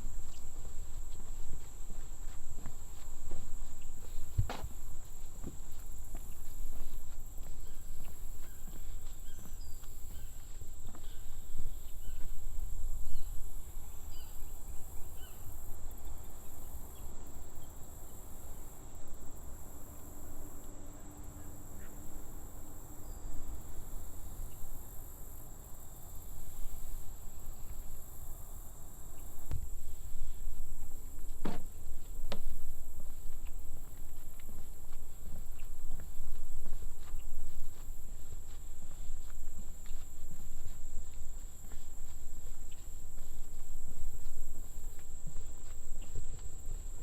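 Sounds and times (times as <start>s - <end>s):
bird calls: 6.4s - 15.6s.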